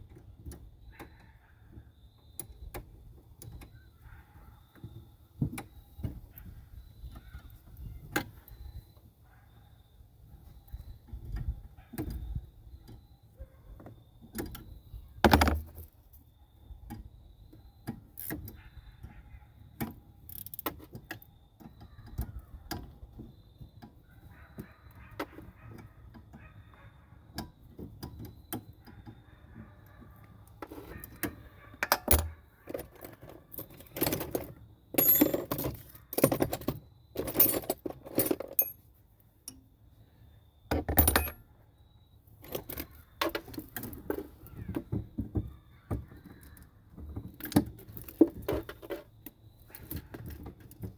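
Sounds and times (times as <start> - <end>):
metal tools clicking and clinking: 30.6 - 38.9, 40.7 - 41.4.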